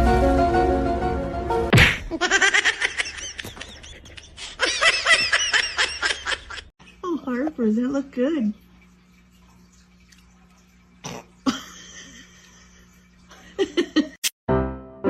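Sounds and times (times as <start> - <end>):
background music: 0.0 - 1.7, 14.5 - 15.0.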